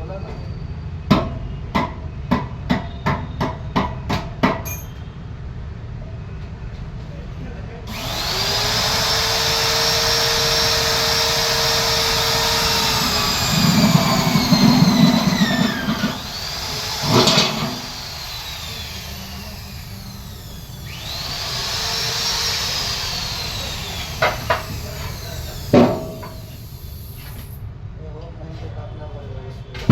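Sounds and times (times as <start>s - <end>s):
power tool motor whining: 7.9s - 27.6s.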